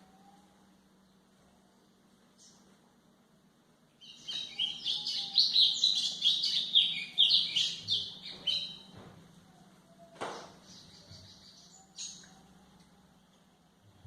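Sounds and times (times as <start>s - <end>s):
bird singing high chirps and trills: 3.9s - 14.0s.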